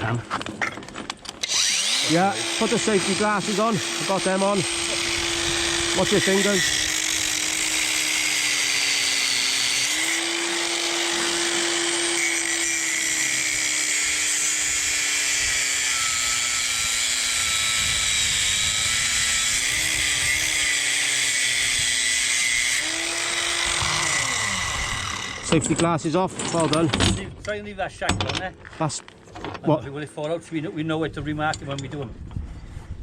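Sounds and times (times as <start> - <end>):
angle grinder cutting steel: 1.4 - 25.9.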